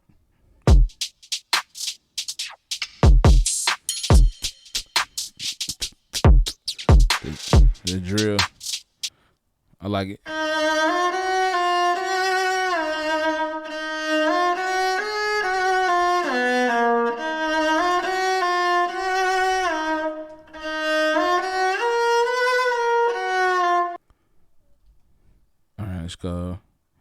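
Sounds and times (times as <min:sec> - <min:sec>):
drill melody loop with string lead: 0:00.7 - 0:09.1.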